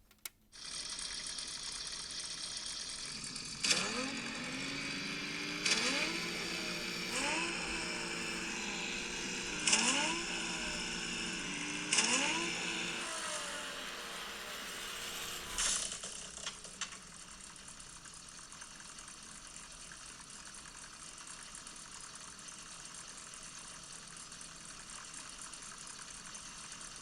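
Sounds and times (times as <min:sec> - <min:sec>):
electric motors whining: 0:00.6 - 0:16.1.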